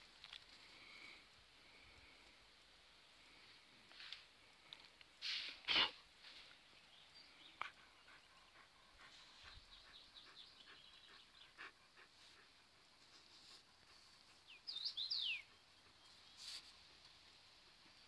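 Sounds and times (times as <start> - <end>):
small birds chirping: 6.2 - 18.0.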